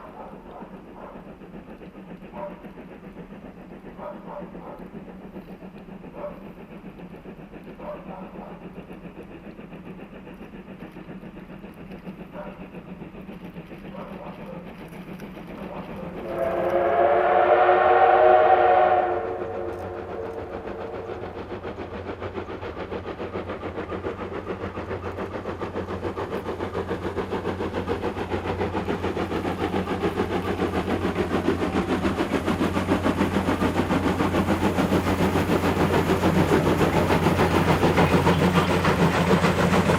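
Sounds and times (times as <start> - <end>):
steam locomotive exhaust chuffs: 0.0 - 39.9
steam whistle blowing: 16.2 - 21.4.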